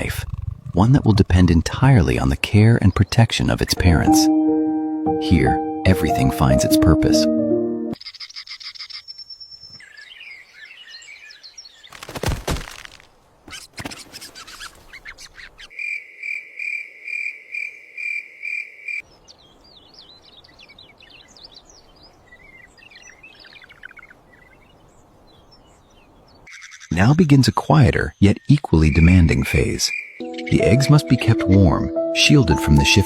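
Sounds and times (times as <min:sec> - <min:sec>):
birds chirping: 0:00.0 - 0:12.0, 0:19.0 - 0:33.0.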